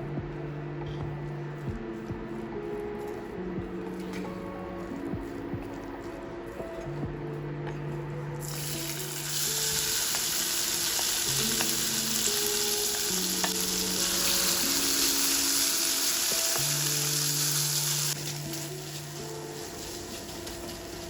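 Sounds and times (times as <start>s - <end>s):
gentle background music: 0.0s - 21.0s
chicken sizzling in hot oil: 8.4s - 21.0s.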